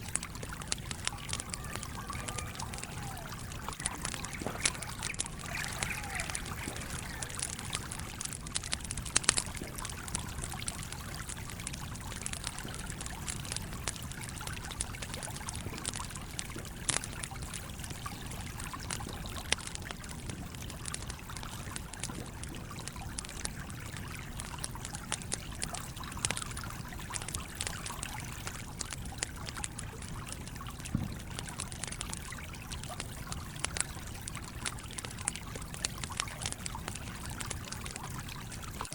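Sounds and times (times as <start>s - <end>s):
stream flowing: 0.0s - 30.8s
campfire crackling and popping: 0.0s - 38.9s.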